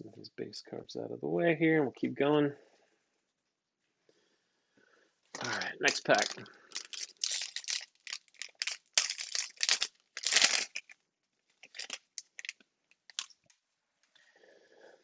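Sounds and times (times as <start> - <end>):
foil wrapper tearing and crinkling: 5.4 - 11.0, 11.6 - 13.3.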